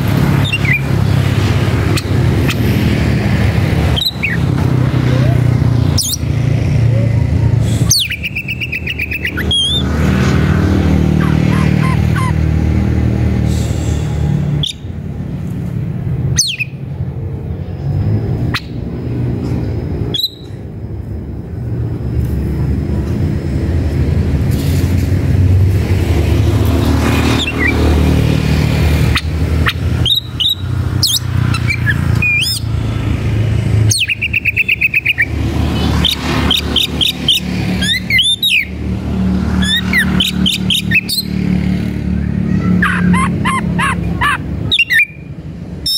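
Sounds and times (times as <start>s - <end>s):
bird singing: 0.0s - 1.1s, 3.8s - 4.6s, 5.6s - 6.5s, 7.9s - 10.1s, 10.9s - 12.5s, 16.3s - 16.9s, 20.1s - 20.6s, 29.1s - 32.8s, 33.9s - 38.9s, 39.6s - 41.6s, 42.3s - 45.9s.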